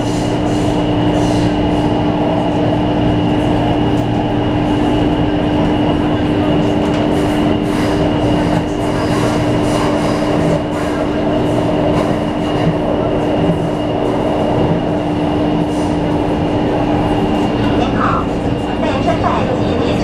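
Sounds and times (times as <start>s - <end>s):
train rumbling: 0.0s - 20.0s
high whine: 16.6s - 19.4s.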